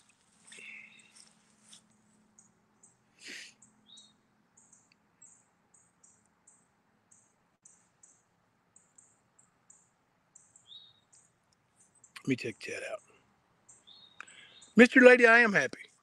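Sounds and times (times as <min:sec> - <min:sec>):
breath-like puff: 0:03.2 - 0:03.5.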